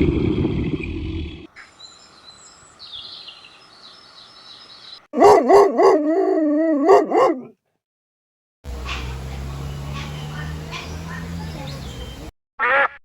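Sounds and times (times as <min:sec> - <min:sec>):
dog howling and yelping: 0:05.2 - 0:07.5.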